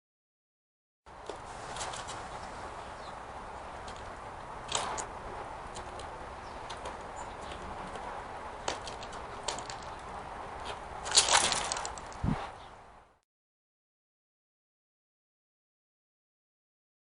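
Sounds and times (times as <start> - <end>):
clicking and rustling: 5.7 - 12.2.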